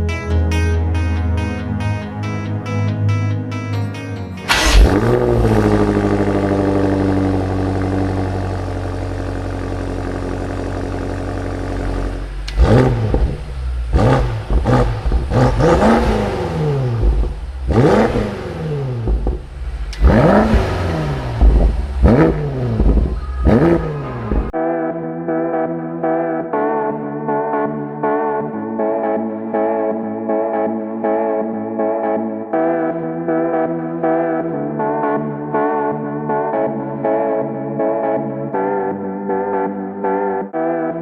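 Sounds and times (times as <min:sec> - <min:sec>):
car engine starting and idling: 0:04.4 - 0:24.6
engine throttle blips: 0:04.5 - 0:24.6.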